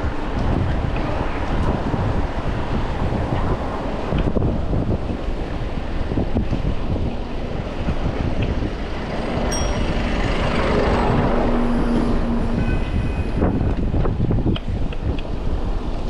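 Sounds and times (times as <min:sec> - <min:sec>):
wind buffeting microphone: 0:00.0 - 0:16.0
vehicle passing close by: 0:08.0 - 0:13.6.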